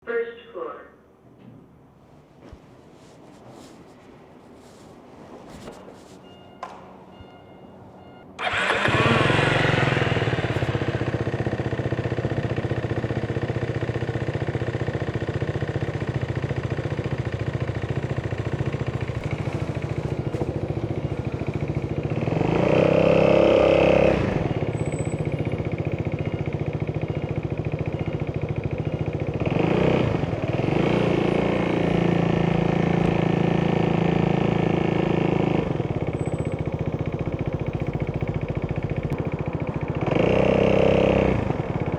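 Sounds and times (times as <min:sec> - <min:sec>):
scooter engine revving: 0:08.4 - 0:41.9.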